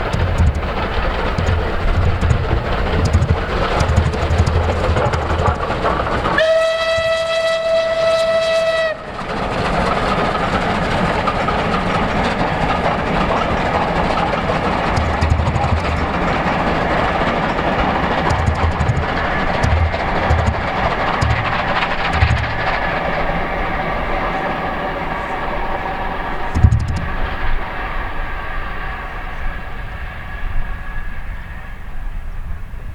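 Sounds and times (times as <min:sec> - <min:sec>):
steam train running on track: 0:00.0 - 0:24.4
steam whistle: 0:06.4 - 0:09.1.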